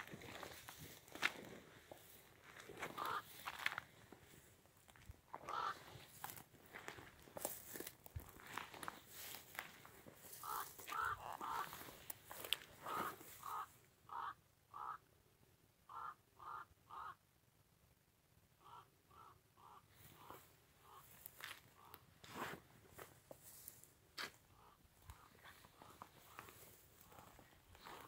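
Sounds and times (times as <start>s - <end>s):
footsteps through dry grass: 0.0s - 13.8s, 20.0s - 28.0s
bird calling: 2.6s - 3.8s, 5.4s - 6.4s, 8.8s - 15.1s, 15.9s - 17.2s, 18.6s - 22.0s, 23.6s - 28.0s.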